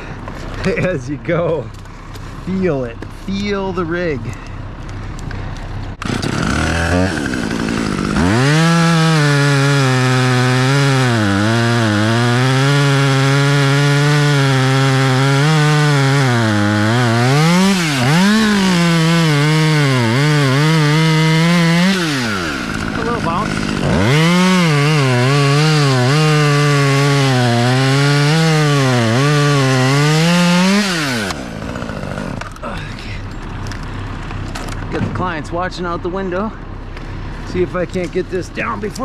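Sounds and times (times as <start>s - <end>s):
chainsaw cutting wood: 5.9s - 32.6s.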